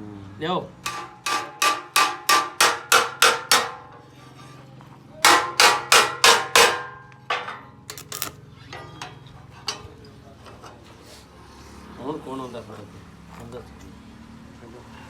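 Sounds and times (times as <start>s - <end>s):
hammer striking metal: 0.8s - 4.0s, 5.2s - 8.3s.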